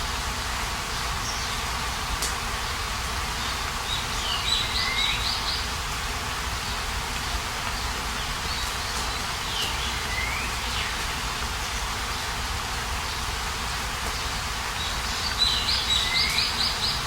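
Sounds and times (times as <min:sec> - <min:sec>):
outdoor hiss: 0:00.0 - 0:17.0
songbird whistling: 0:09.5 - 0:10.9.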